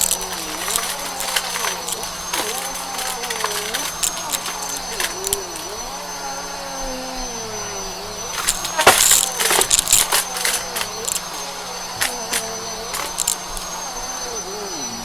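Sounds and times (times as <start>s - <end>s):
rattling clicks and knocks: 0.0s - 5.8s, 8.3s - 13.8s
vacuum cleaner running: 0.0s - 15.0s.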